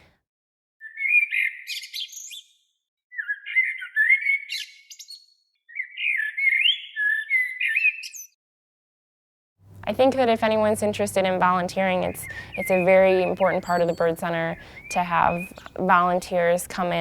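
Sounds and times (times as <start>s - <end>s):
songbird warbling: 0.8s - 8.4s, 11.2s - 16.8s.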